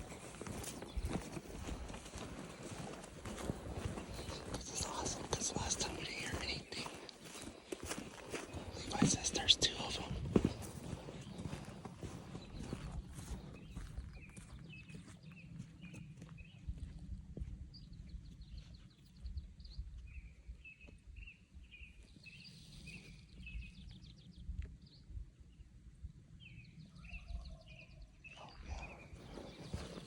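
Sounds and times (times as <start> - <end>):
songbird chirping: 0.0 - 30.0
rustling in brush: 28.9 - 30.0.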